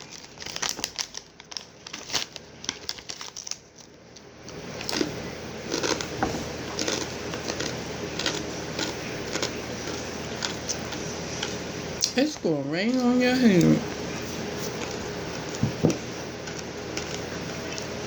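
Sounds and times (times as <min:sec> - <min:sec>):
snack bag rustling: 0:00.0 - 0:11.7, 0:13.6 - 0:18.0
snacks crunching: 0:00.0 - 0:12.2, 0:13.9 - 0:18.0.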